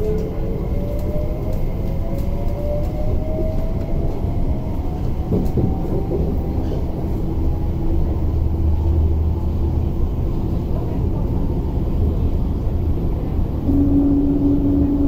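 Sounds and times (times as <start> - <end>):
wheels rumbling on track: 0.0 - 15.0
electric train motor whine: 13.7 - 15.0.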